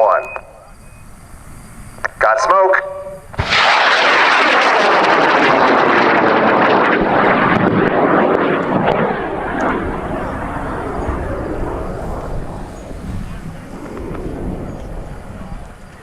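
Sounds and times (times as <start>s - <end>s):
rocket motor roaring with crackle: 3.3s - 16.0s.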